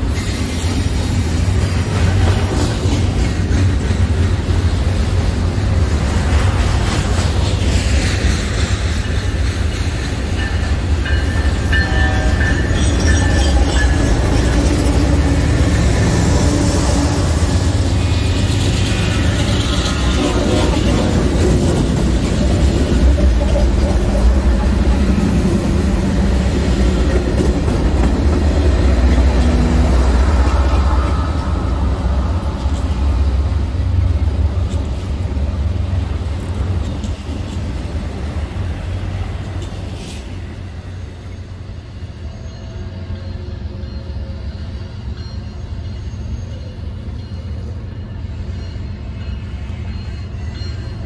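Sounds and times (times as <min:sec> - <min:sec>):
steel wheels clattering on rails: 0:00.0 - 0:40.4
diesel locomotives rumbling: 0:00.0 - 0:51.0.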